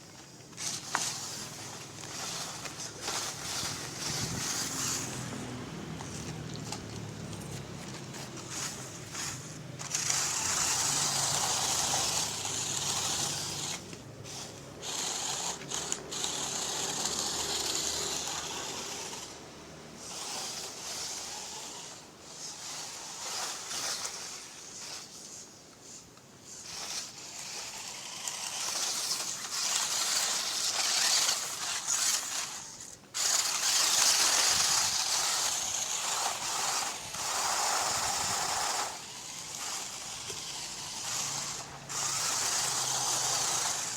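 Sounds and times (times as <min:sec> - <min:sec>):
electric motor whirring: 0:00.5 - 0:43.9.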